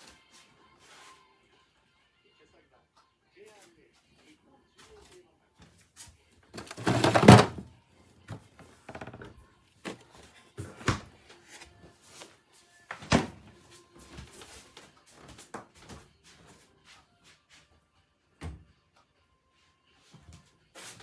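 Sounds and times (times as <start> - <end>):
thuds and knocks: 6.6 - 7.6.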